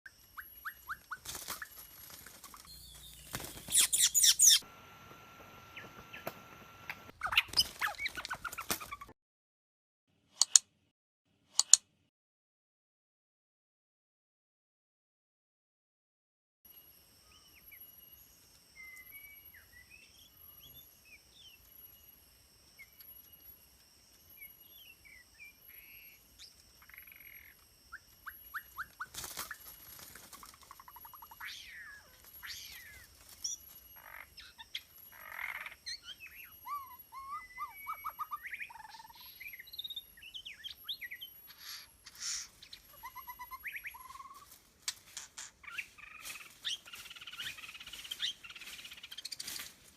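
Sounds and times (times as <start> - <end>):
bird singing whistled notes: 0.2 - 1.8, 2.6 - 4.6, 18.8 - 22.0, 24.3 - 29.7, 30.7 - 44.5, 45.6 - 49.7.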